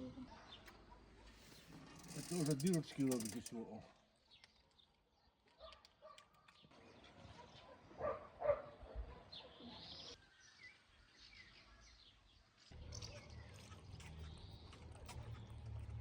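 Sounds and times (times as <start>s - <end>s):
faint outdoor ambience: 6.4s - 16.0s.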